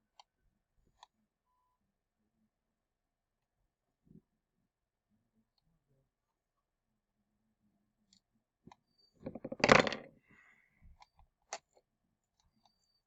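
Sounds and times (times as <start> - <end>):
small parts and tools clattering: 9.2 - 10.1.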